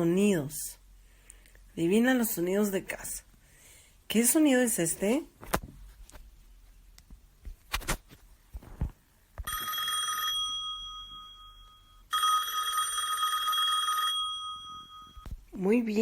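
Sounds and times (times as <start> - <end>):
telephone ringing: 9.4 - 15.3.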